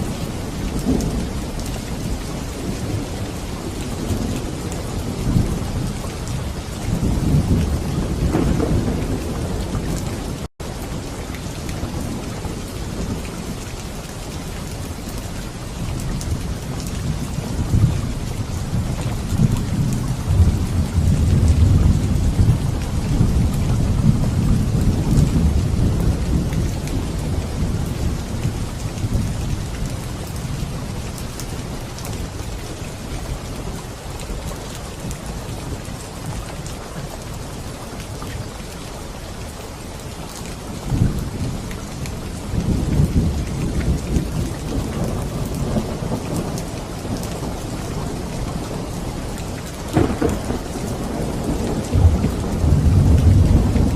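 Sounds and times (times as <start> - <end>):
thunder rumbling: 0.0 - 10.5, 16.3 - 31.0, 40.8 - 53.9
heavy rain: 0.0 - 53.9
sharp thunderclap: 6.9 - 10.0, 49.9 - 53.9.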